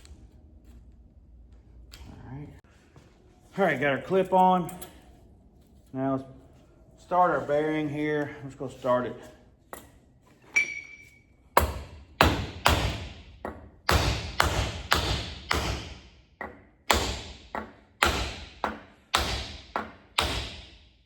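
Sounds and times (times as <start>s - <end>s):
sharp metal knocks: 11.6s - 20.8s.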